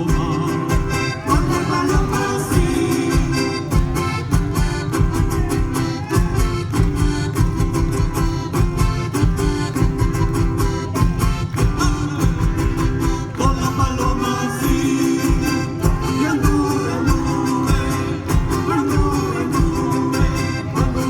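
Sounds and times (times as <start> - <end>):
person singing: 0.0 - 6.5, 11.6 - 21.0
live folk music: 0.0 - 21.0.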